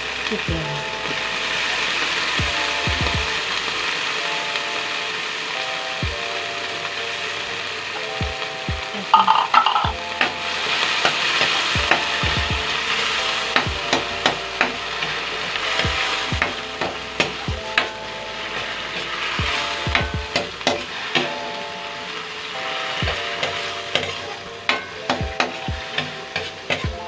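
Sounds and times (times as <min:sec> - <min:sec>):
meat sizzling in a wok: 0:00.0 - 0:27.0
metal utensil scraping the pan: 0:09.1 - 0:11.7.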